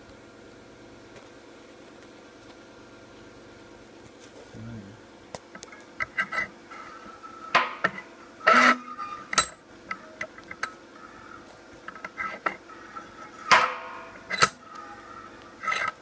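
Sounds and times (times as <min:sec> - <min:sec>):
faint steady hum: 0:00.0 - 0:16.0
metal objects clinking: 0:09.3 - 0:09.6.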